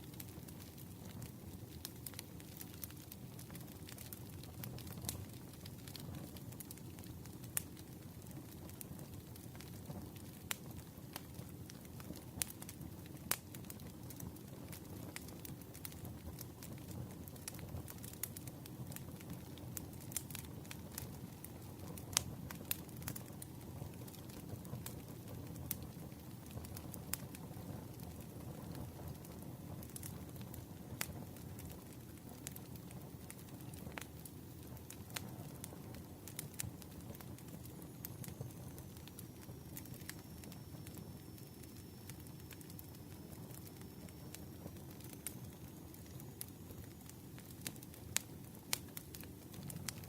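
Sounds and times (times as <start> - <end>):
burning wood crackling and popping: 0.0 - 50.0
campfire low rumble: 0.0 - 50.0.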